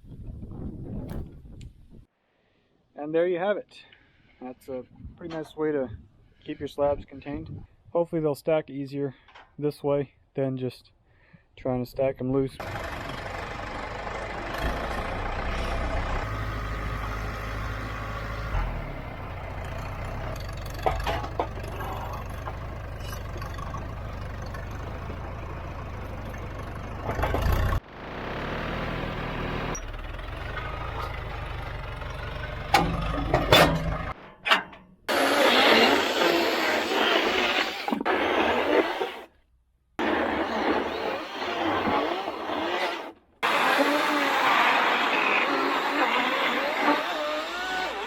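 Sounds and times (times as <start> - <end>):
engine idling: 12.6 - 34.2
sharp knocks and clatters: 20.4 - 23.8.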